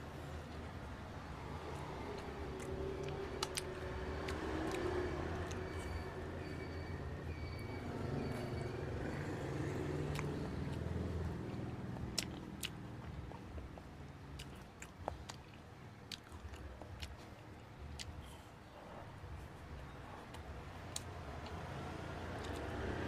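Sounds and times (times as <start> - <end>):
biting and chewing: 1.6 - 6.0, 9.1 - 23.0.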